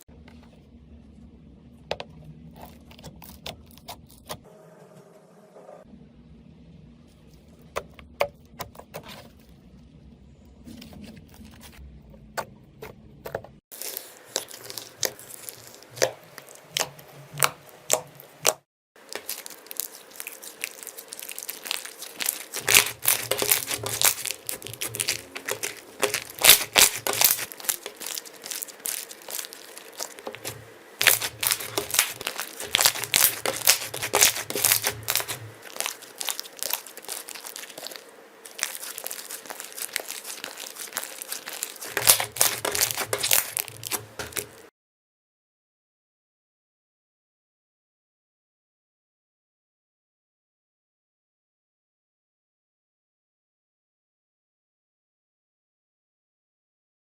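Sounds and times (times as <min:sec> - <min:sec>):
slime crackling and popping: 0:13.8 - 0:44.7.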